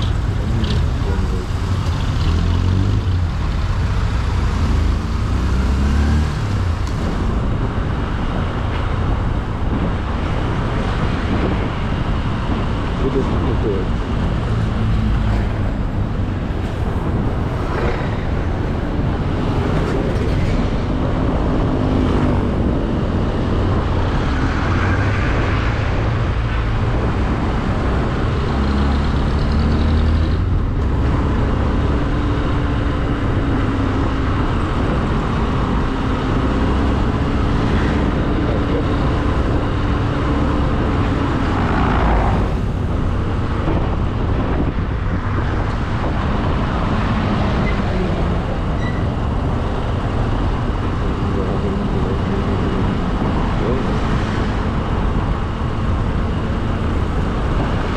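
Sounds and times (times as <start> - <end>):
road noise: 0.0 - 57.9.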